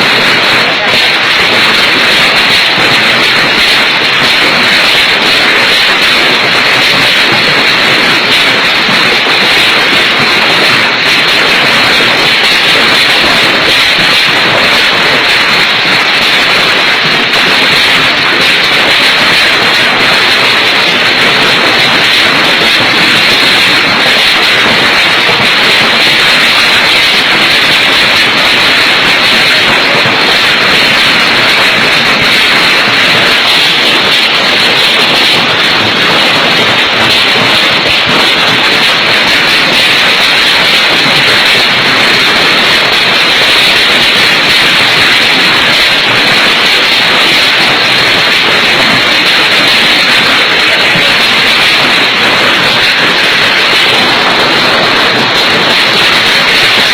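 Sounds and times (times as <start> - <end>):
hailstones falling: 0.0 - 56.9.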